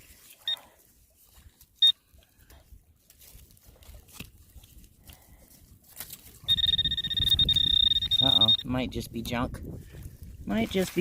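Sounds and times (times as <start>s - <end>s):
digging in soil: 0.0s - 8.5s, 10.5s - 11.0s
metal detector beeping: 1.8s - 2.0s, 6.4s - 8.7s.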